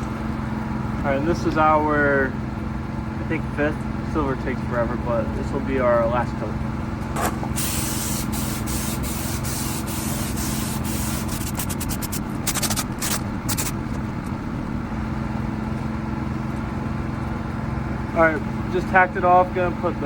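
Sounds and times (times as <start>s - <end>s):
low machine hum: 0.0s - 20.0s
paint spray gun hissing: 7.5s - 13.8s.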